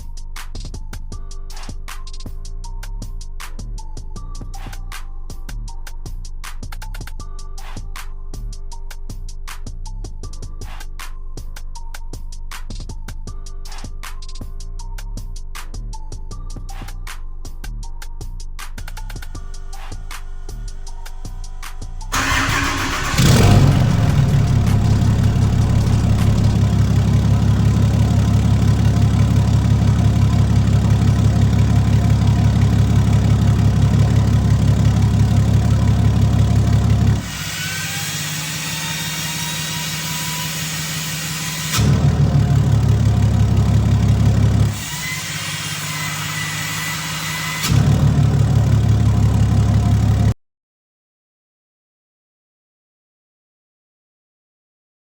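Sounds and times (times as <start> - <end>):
diesel engine idling: 19.0 - 37.4
diesel engine starting: 19.0 - 50.2.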